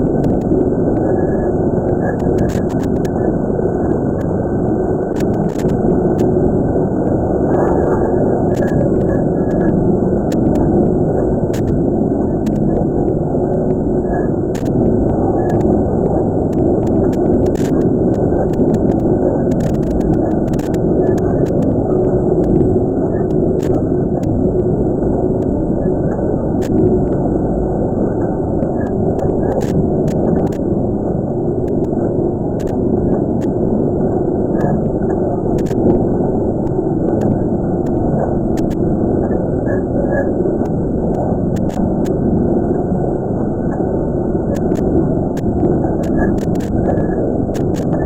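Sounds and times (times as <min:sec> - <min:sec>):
faint clicks: 0:00.0 - 0:01.2, 0:01.8 - 0:03.3, 0:03.9 - 0:06.3, 0:07.0 - 0:24.7, 0:26.1 - 0:27.3, 0:28.6 - 0:30.6, 0:32.6 - 0:32.8, 0:34.6 - 0:36.0, 0:36.6 - 0:38.8, 0:40.6 - 0:42.2, 0:44.5 - 0:48.0.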